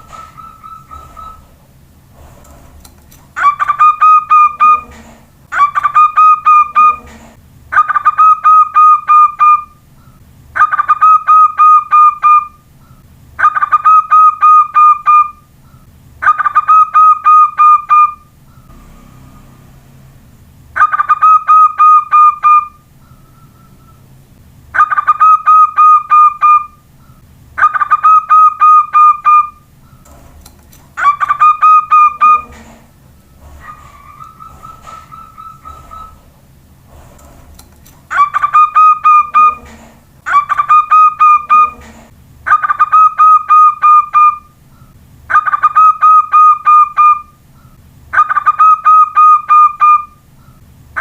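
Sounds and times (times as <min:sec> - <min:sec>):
dove cooing: 0:00.0 - 0:01.6, 0:03.4 - 0:09.6, 0:31.0 - 0:36.3, 0:38.1 - 0:47.2.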